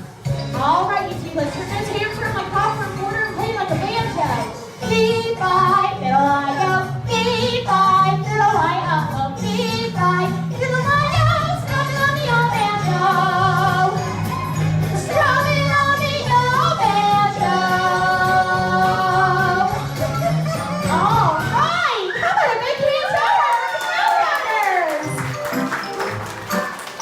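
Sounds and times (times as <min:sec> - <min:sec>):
instrumental backing track: 0:00.0 - 0:21.8
woman singing: 0:00.6 - 0:14.0, 0:15.0 - 0:19.8.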